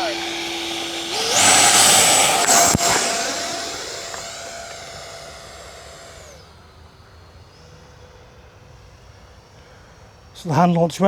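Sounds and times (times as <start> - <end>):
electric jet fan high whine: 0.0 - 7.0.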